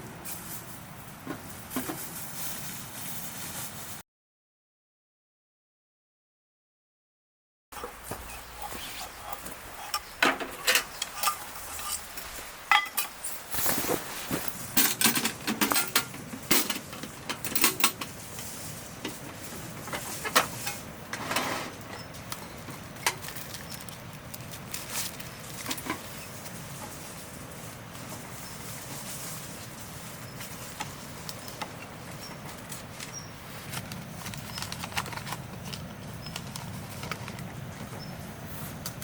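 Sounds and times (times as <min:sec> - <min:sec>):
utensils scraping: 0:07.8 - 0:16.8
utensils clinking against dishes: 0:07.8 - 0:18.1.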